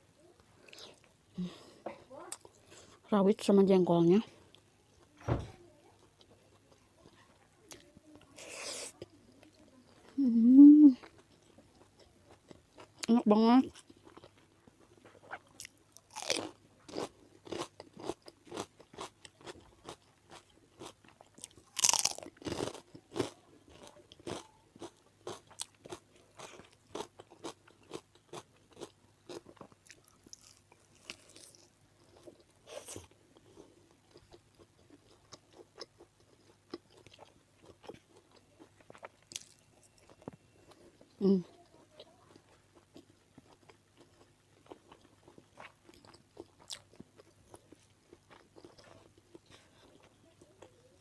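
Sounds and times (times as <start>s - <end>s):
person chewing crunchy food: 13.7s - 41.2s, 42.3s - 50.8s.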